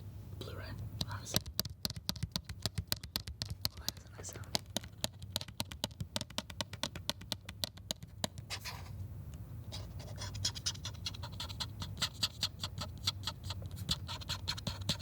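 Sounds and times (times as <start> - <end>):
tapping and scratching on packaging: 1.3 - 8.8.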